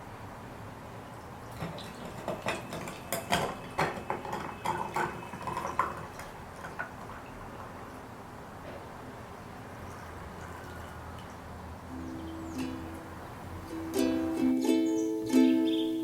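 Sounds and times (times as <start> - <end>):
dishes and utensils clinking: 1.5 - 7.7.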